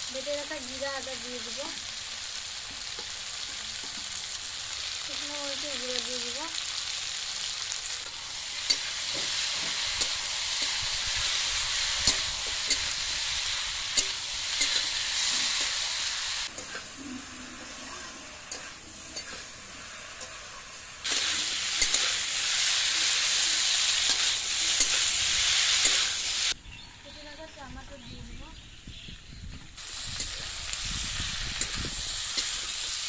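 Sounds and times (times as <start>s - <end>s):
vegetables sizzling in oil: 0.0s - 33.0s
metal spatula scraping a pan: 14.0s - 26.2s.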